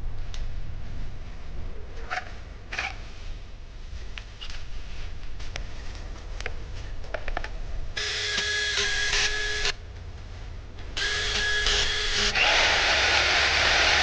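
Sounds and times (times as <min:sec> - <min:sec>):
electric hammer drill motor whining: 0:11.0 - 0:14.0.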